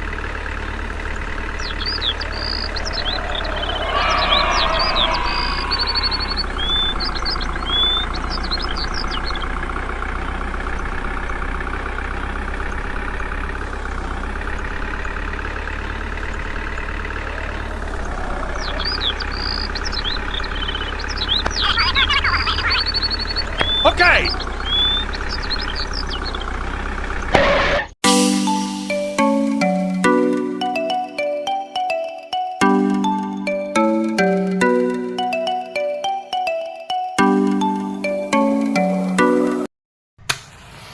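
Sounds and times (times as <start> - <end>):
steady engine running: 0.0 - 27.3
bird chirps: 1.1 - 9.6, 17.2 - 26.6.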